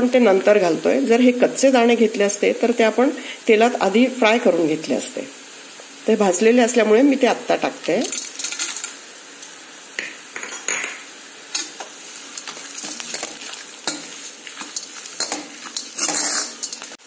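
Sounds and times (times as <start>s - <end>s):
food sizzling in oil: 0.0s - 17.0s
steel spoon scraping pan: 11.5s - 17.0s.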